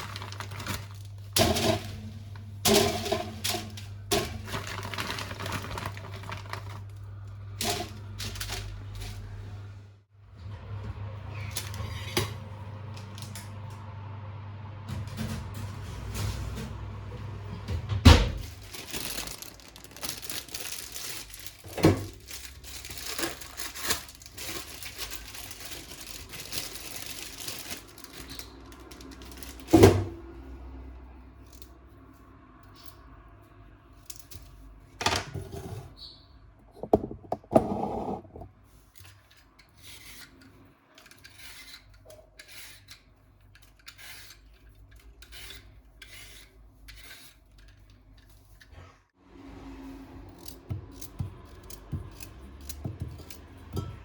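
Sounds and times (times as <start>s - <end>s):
rustling or tearing: 0.0s - 1.3s, 4.5s - 7.0s, 18.4s - 29.8s
objects knocking when set down: 36.7s - 38.5s
scraping and rubbing: 36.7s - 38.6s.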